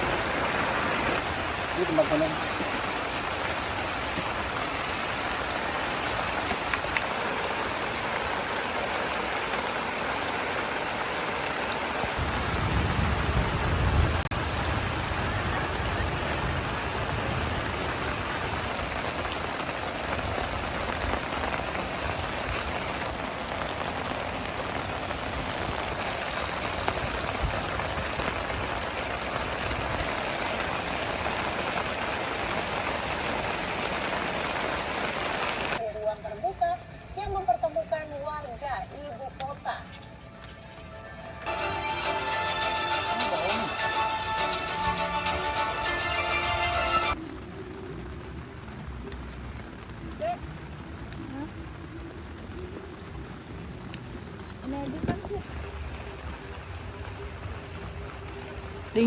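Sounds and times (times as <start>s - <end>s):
heavy rain falling: 0.0s - 35.8s, 41.4s - 59.0s.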